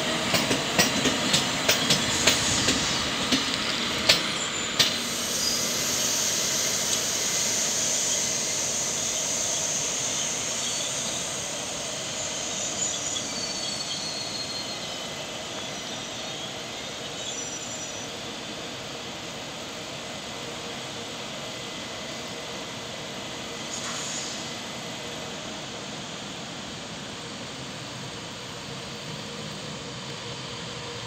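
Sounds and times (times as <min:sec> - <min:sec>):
train rolling along tracks: 0:00.0 - 0:31.0
faint wheel squeals: 0:06.9 - 0:18.3.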